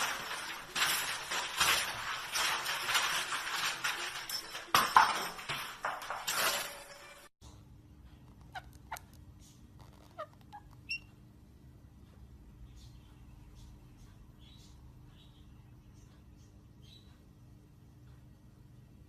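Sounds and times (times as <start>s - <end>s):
parrot chirps and clicks: 8.2s - 11.2s
parrot squawking: 8.4s - 9.1s.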